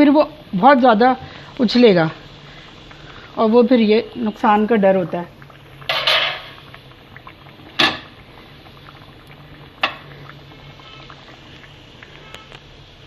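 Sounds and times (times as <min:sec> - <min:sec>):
food bubbling in hot oil: 0:00.0 - 0:13.0.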